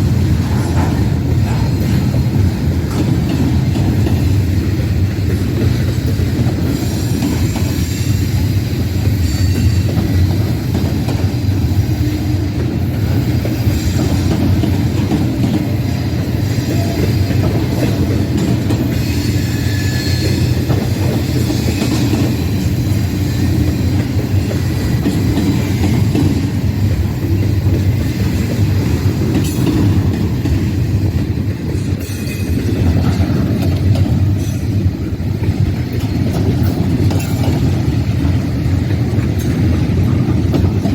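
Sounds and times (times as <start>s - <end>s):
freight train rumbling on rails: 0.0s - 40.9s
high wheel squeals: 6.6s - 10.2s, 18.5s - 26.1s.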